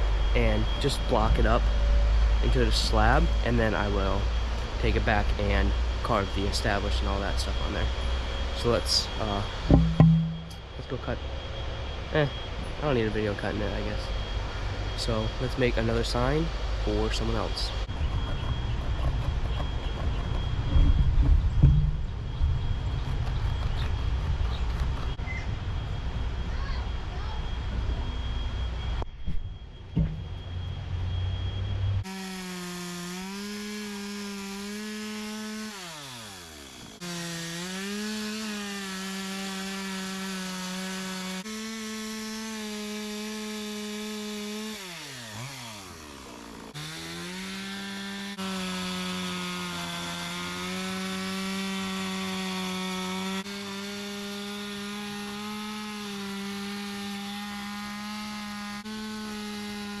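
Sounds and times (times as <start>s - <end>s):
chainsaw engine revving: 32.0s - 60.0s.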